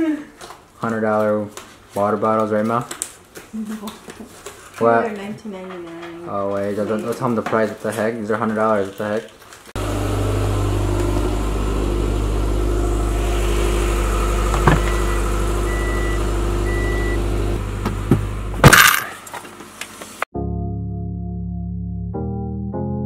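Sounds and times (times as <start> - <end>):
car engine running: 9.8 - 19.0.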